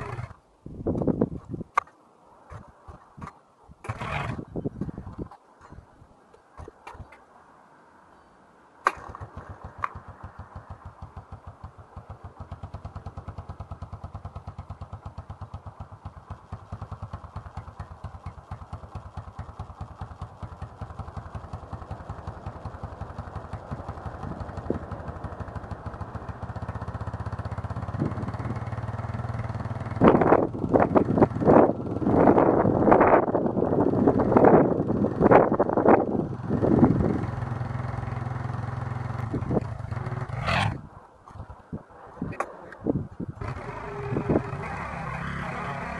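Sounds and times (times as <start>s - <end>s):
quad engine idling: 0.0s - 0.4s, 3.9s - 5.0s, 8.9s - 40.9s, 43.3s - 45.9s
loud engine burst: 43.4s - 45.9s.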